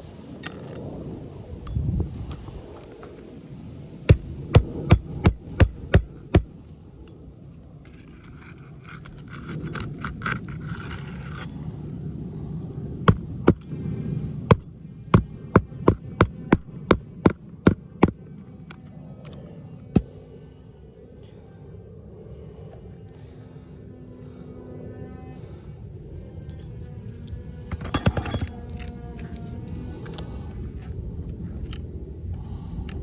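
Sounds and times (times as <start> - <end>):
hammer driving nails: 4.1 - 6.5, 13.1 - 13.7, 14.5 - 18.2.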